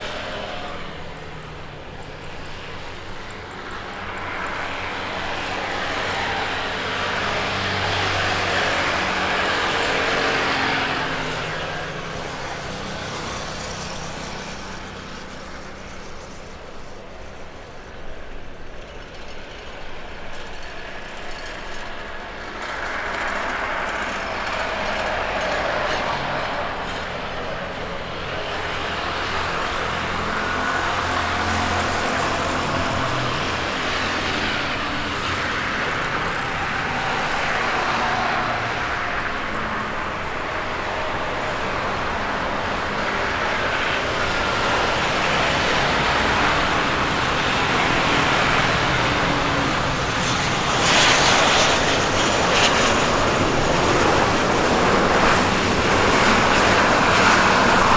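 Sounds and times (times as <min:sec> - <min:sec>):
jet engines running: 0:00.0 - 0:57.9.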